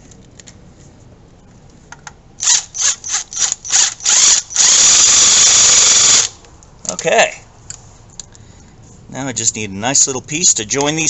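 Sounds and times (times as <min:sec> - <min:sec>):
power drill running: 0:02.4 - 0:06.4.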